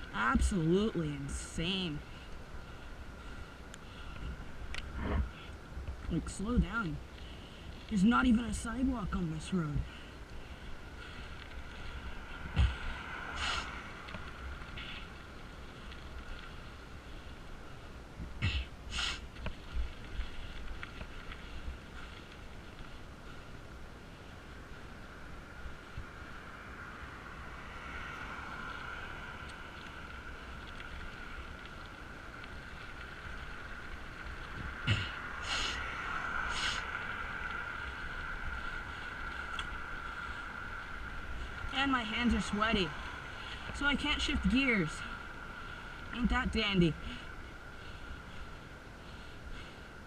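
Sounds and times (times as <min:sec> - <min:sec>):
low road rumble: 0:00.0 - 0:50.0
short hissing bursts: 0:13.4 - 0:13.8, 0:18.9 - 0:19.3, 0:36.5 - 0:36.9.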